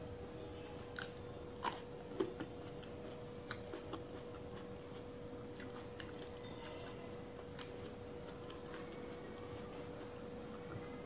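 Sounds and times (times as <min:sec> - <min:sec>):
faint steady hum: 0:00.0 - 0:11.0
wet mouth clicks chewing: 0:00.8 - 0:09.0.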